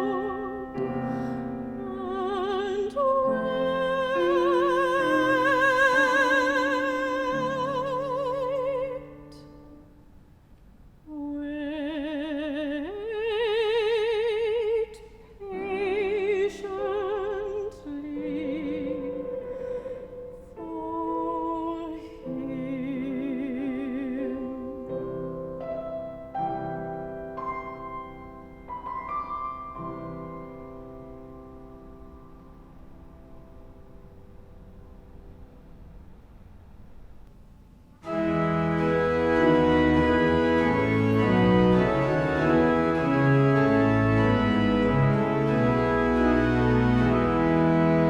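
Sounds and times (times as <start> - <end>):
classical solo voice singing: 0.0 - 9.7, 11.1 - 25.5, 38.0 - 48.0
keyboard accompaniment: 24.2 - 36.4, 38.0 - 48.0.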